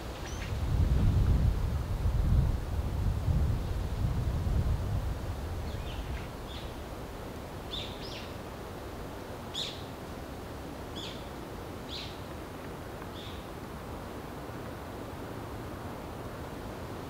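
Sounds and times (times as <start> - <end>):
background hiss: 0.0 - 17.0
small bird chirping: 0.2 - 0.5, 7.7 - 8.4.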